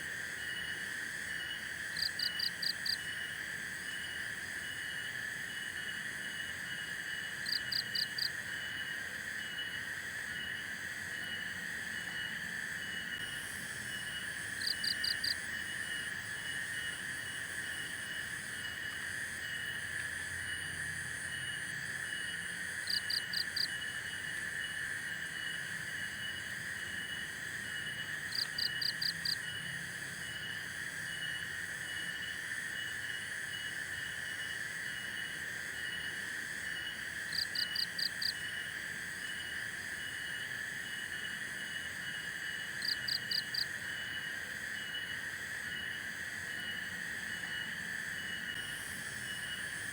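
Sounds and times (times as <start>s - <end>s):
insects and frogs droning: 0.0s - 49.9s.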